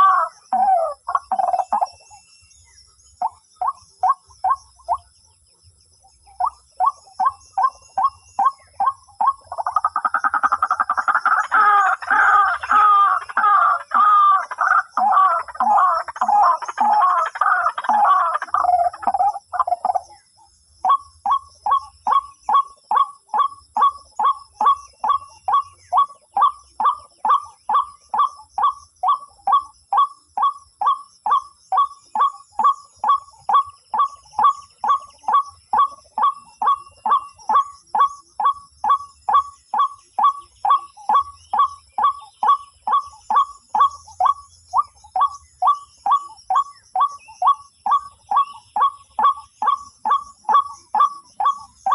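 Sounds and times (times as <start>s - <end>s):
waterhen calling: 0.0s - 1.9s, 6.4s - 20.0s.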